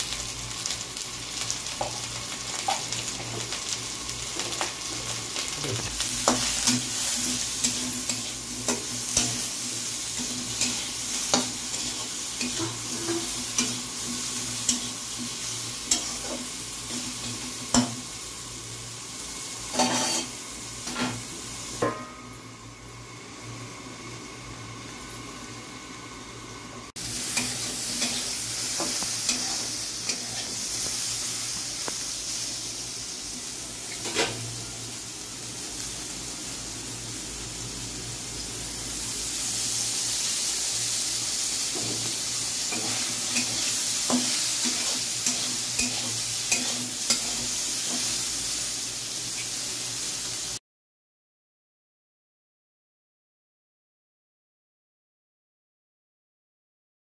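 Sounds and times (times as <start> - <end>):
vegetables sizzling in oil: 0.0 - 50.6
metal spatula scraping a pan: 5.9 - 17.9, 19.7 - 21.2, 27.2 - 30.7, 41.8 - 48.2.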